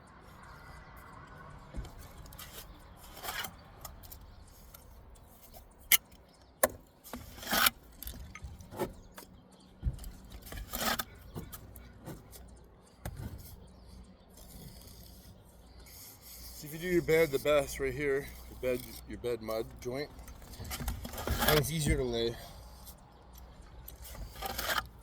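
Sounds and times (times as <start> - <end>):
trowel scraping mortar: 14.4 - 23.0, 23.9 - 25.0.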